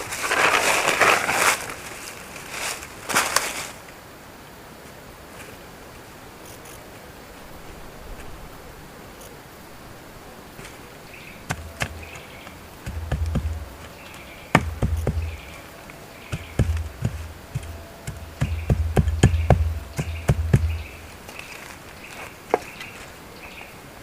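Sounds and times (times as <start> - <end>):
sharp knocks and dull thuds: 11.4 - 21.1.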